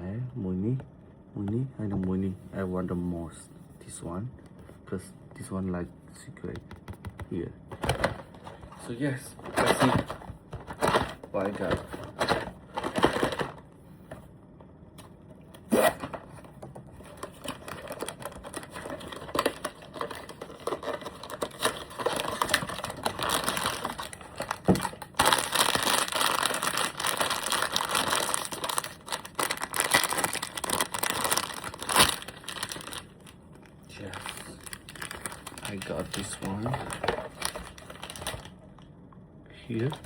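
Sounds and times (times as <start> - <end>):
packaging tearing and crinkling: 17.0 - 38.5.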